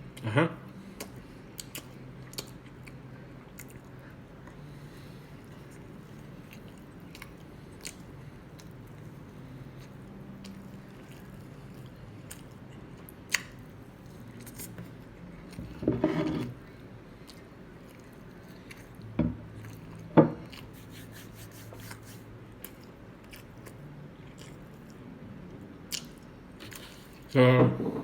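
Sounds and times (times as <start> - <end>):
person eating: 0.8 - 13.6, 16.4 - 25.0.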